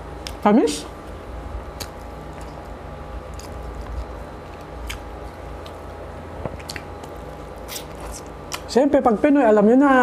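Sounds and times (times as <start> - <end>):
person chewing food: 1.8 - 8.7.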